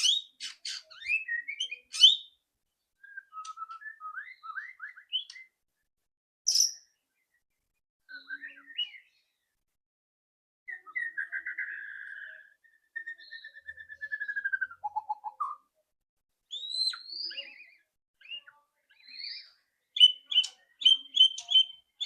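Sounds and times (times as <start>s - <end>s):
bird singing trills and whistles: 0.0s - 2.4s, 3.0s - 5.6s, 6.5s - 6.9s, 8.1s - 9.1s, 10.7s - 15.7s, 16.5s - 22.0s.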